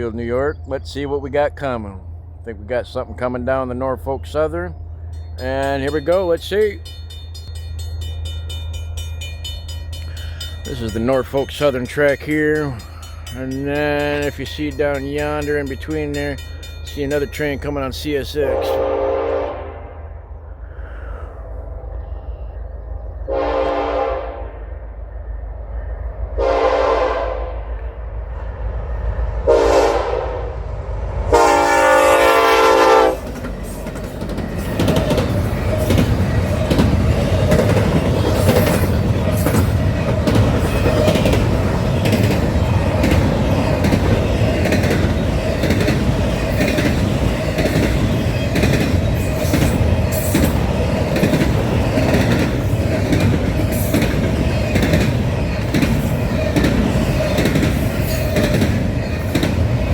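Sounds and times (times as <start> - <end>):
train rumbling past: 0.0 - 59.9
wheels clicking over rail joints: 5.1 - 18.0, 33.2 - 59.9
train horn blasts: 18.4 - 20.2, 23.3 - 24.8, 26.4 - 27.7, 29.5 - 30.5, 31.3 - 33.4.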